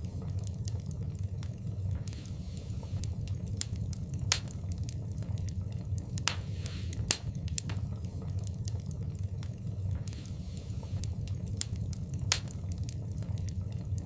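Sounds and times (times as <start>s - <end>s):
fire crackling and popping: 0.0s - 14.0s
fire flames rumbling: 0.0s - 14.0s.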